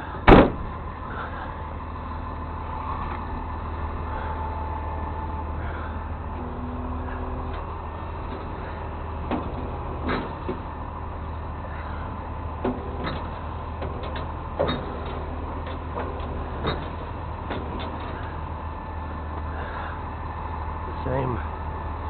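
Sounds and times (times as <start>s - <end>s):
truck engine idling: 0.0s - 22.0s
metallic knocks and clanks: 9.2s - 10.7s, 12.6s - 18.4s.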